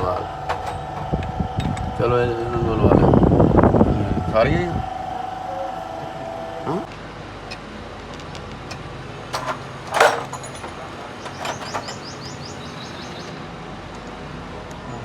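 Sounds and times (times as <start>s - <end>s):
metal clanks of hand tools: 0.5s - 1.8s, 8.7s - 12.2s.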